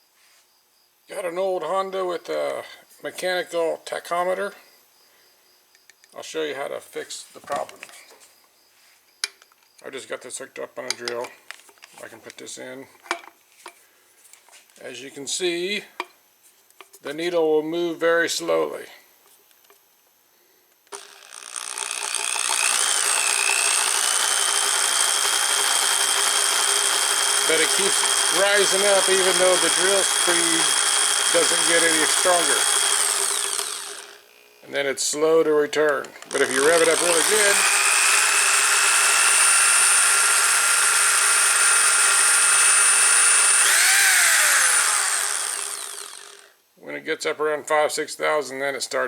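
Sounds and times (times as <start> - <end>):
electric drill whining: 20.9 - 34.6, 36.1 - 46.6.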